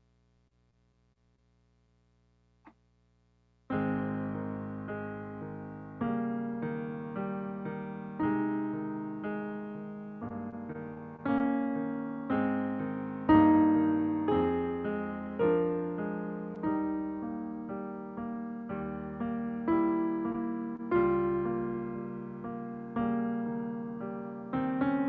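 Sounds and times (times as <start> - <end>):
piano playing slow chords: 3.7 - 25.0.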